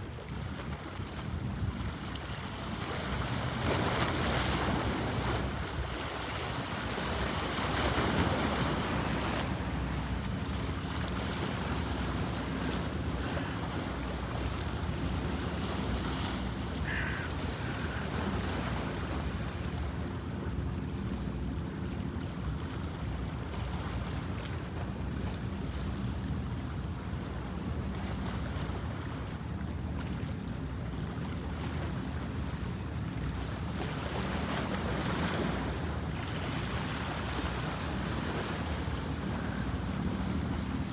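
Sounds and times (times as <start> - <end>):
waves washing: 7.1 - 21.2, 34.2 - 40.9.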